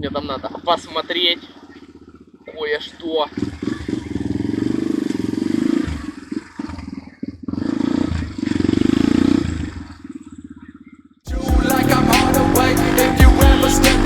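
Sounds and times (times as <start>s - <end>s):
dirt bike engine revving: 3.3s - 10.1s, 11.3s - 14.0s.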